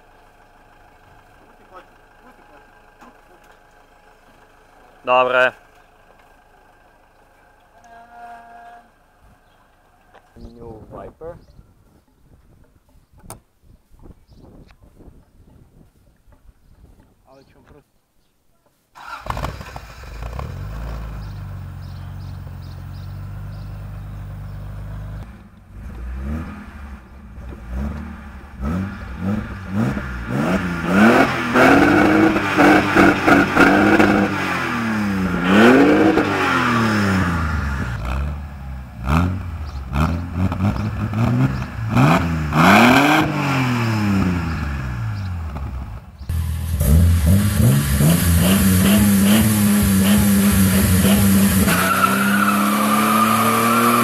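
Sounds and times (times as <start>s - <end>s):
car engine idling and revving: 0.0s - 10.5s, 19.0s - 54.0s
car driving off: 19.0s - 54.0s.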